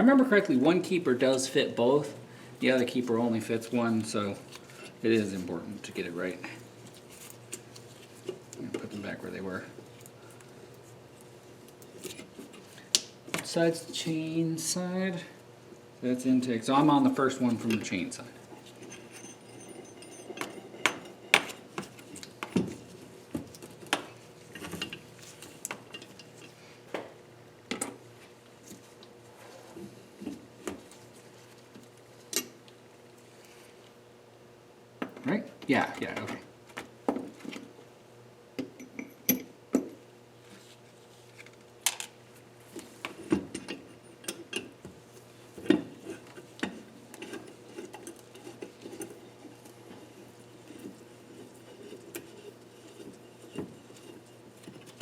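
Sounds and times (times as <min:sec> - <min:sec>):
steel parts and tools clinking: 0:18.8 - 0:21.3.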